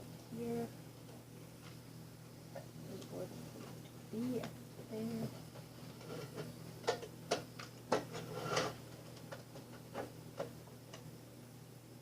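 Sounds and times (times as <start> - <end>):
window fan humming: 0.0 - 12.0
short scrape: 8.2 - 8.8.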